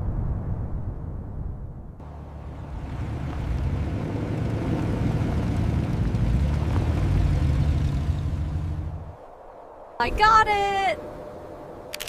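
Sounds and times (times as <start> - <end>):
aircraft engine rumbling: 2.0 - 9.2.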